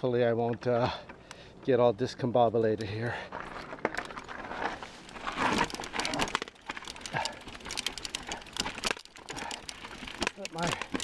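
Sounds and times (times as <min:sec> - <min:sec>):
bike rattling and clicking: 0:03.1 - 0:11.0.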